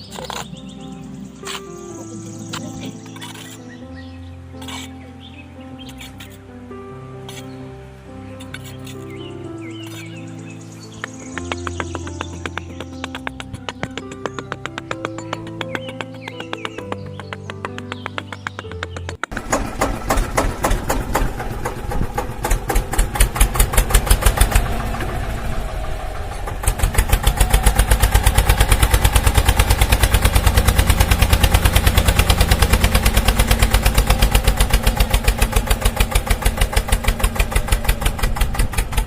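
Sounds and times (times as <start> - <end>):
small engine chugging: 19.3 - 39.0.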